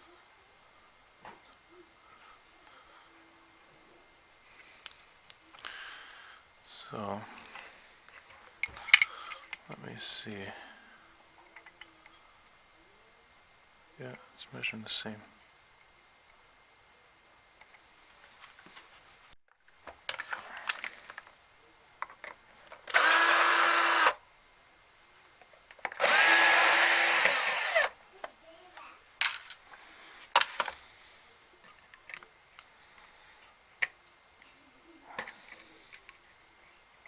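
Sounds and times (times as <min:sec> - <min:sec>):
power tool motor running: 0:22.9 - 0:24.2, 0:26.0 - 0:28.0.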